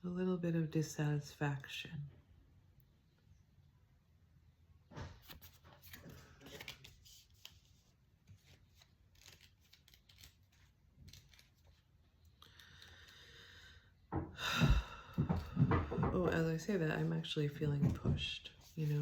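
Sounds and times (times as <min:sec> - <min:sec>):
cards clicking and rustling: 0:05.2 - 0:13.0.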